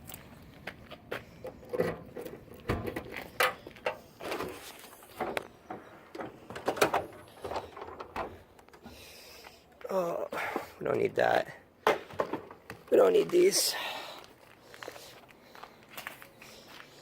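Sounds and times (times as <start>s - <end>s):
items rummaged in a car: 1.6s - 8.9s.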